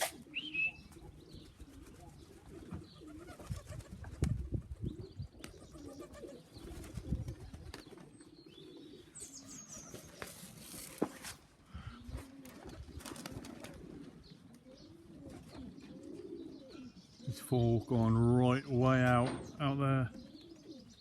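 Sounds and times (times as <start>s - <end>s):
high bird chirps: 0.0s - 0.9s
pigeons cooing: 0.0s - 21.0s.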